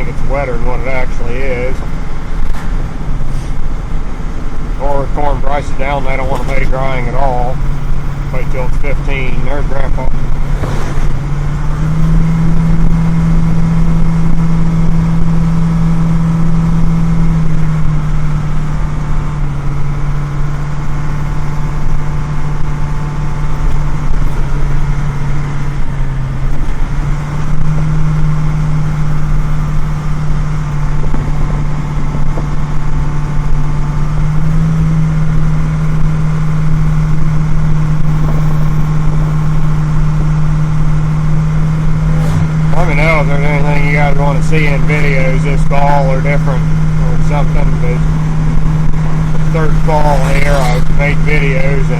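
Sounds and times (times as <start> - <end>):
truck engine running: 0.0 - 51.9.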